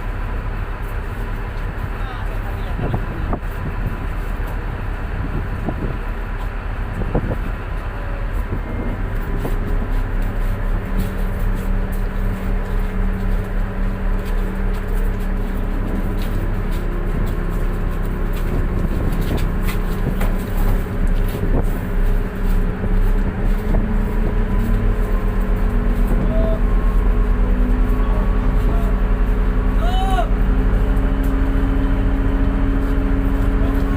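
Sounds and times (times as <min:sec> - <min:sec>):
boat diesel engine throbbing: 0:00.0 - 0:33.9.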